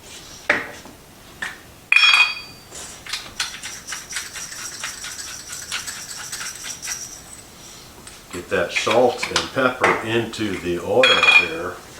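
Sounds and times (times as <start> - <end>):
kitchenware clinking: 1.9 - 11.7
salt and pepper shaker rattling: 2.7 - 8.2.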